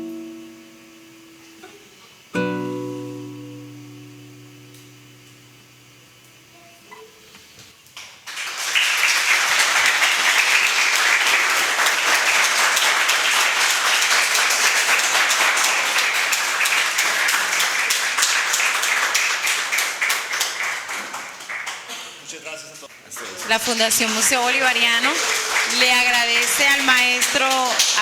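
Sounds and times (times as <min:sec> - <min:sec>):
classical guitar notes: 0:00.0 - 0:07.4
audience applauding: 0:08.0 - 0:28.0.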